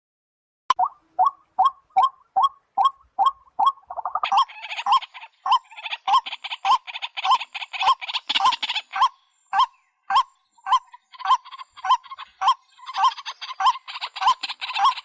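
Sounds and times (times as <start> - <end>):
raspy croaking chatter: 0.7 - 15.0
waterhen hollow calls: 0.7 - 15.0.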